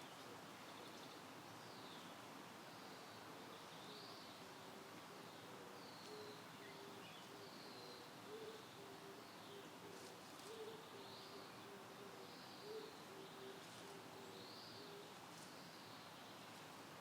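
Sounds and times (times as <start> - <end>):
dove cooing: 8.2 - 15.1.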